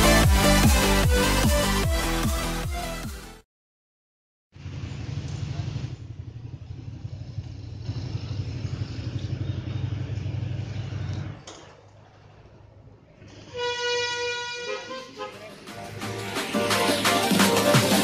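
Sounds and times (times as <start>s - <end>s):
motorcycle engine idling: 4.6s - 11.5s.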